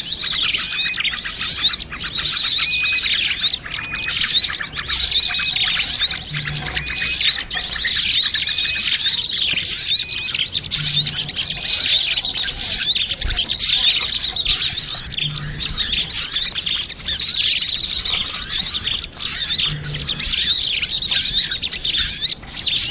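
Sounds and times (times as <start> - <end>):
small birds chirping: 0.0 - 22.9
faint low note: 6.0 - 7.9, 10.3 - 13.7.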